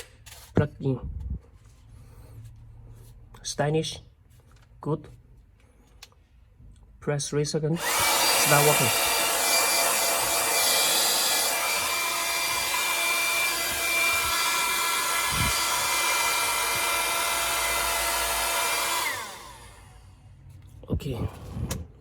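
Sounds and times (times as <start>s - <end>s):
motor spinning down: 7.8s - 20.2s
hair dryer running: 7.8s - 20.3s.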